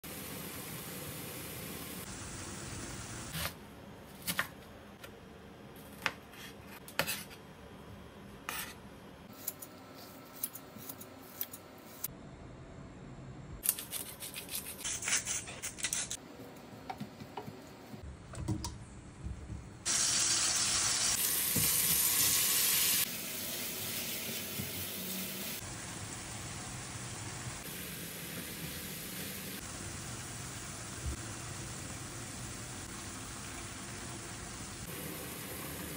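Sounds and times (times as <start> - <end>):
stir-fry sizzling in oil: 0.0 - 3.4, 19.9 - 35.9.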